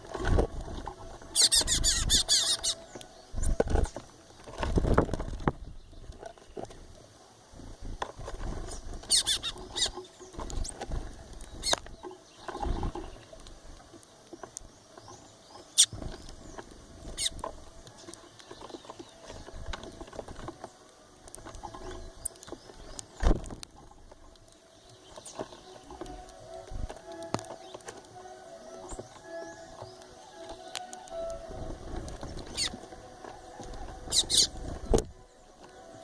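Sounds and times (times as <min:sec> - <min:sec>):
birds tapping and rustling: 0:00.0 - 0:36.0
short high bird calls: 0:01.3 - 0:02.9, 0:34.0 - 0:34.6.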